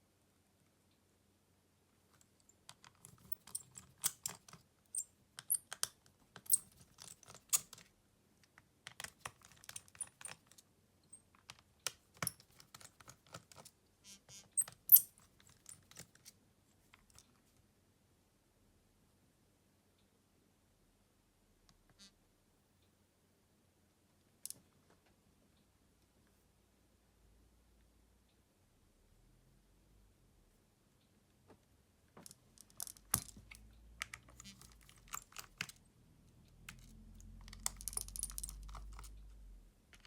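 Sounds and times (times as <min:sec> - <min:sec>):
small clicks and taps of tools: 0:02.1 - 0:10.6, 0:32.2 - 0:35.8.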